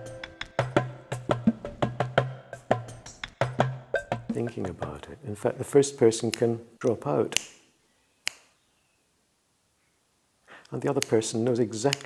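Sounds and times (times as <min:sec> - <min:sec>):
low held note: 0:00.0 - 0:01.4.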